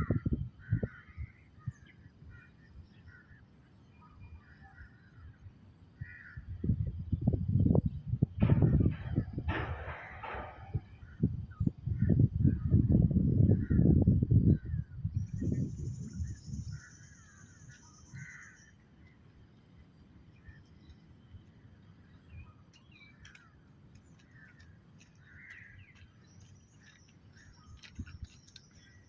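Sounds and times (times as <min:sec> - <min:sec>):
low rumbling on microphone: 0:06.5 - 0:16.8
birds harsh calls: 0:15.4 - 0:19.3, 0:20.0 - 0:29.0.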